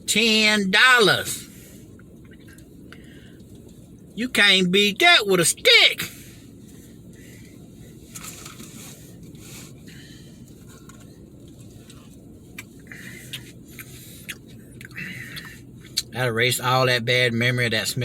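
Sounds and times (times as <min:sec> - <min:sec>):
low background rumble: 0:00.0 - 0:18.0
chewing: 0:10.8 - 0:15.5.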